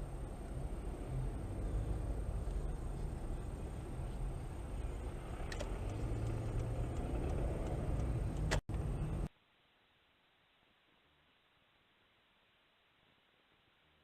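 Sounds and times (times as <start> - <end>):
car engine and road noise: 0.0 - 9.3.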